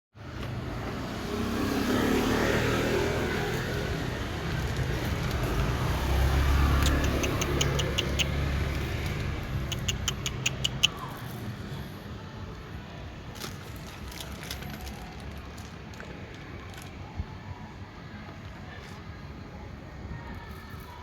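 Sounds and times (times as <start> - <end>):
car engine rumble: 0.2 - 10.3
sharp clicks: 6.7 - 11.1.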